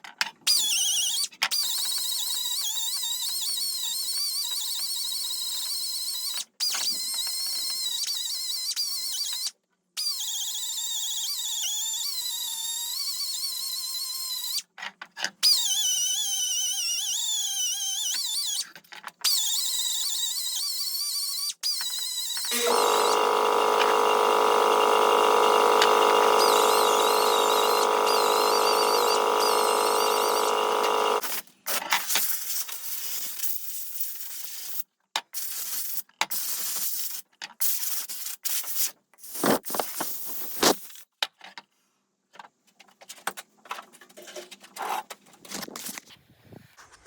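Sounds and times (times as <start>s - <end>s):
small electric power tool running: 22.4s - 31.4s.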